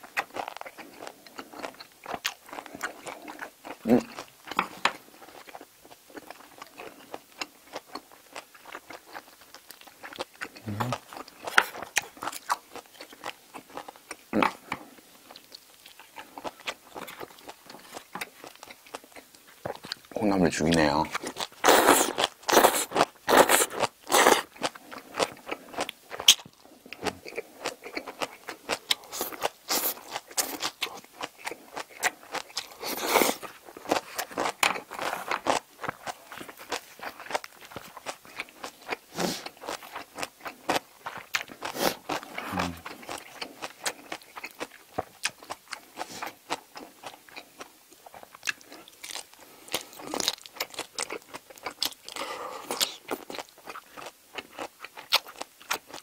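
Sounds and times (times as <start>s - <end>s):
wet crunching chewing: 0.0s - 56.0s
slurping: 41.7s - 43.1s.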